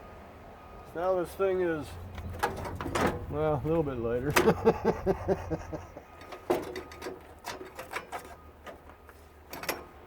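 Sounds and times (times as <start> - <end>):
metal parts rattling: 2.1 - 3.3, 6.2 - 8.8.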